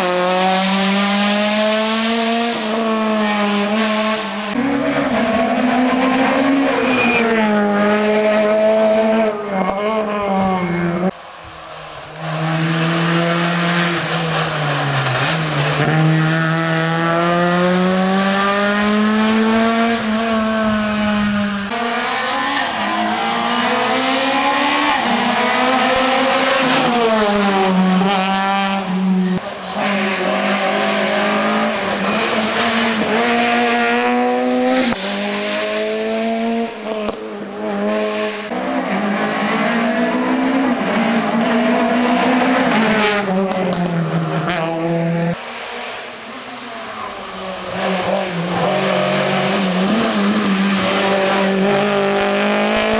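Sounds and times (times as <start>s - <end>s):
rally car engine revving: 0.0s - 52.9s.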